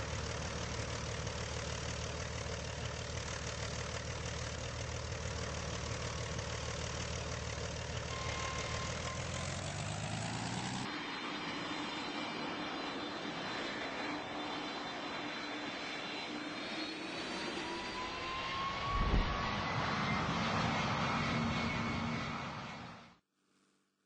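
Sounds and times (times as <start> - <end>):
jet engine whine rising: 0.0 - 23.2
jet engines roaring: 4.2 - 23.1
brief low rumble: 18.8 - 19.7.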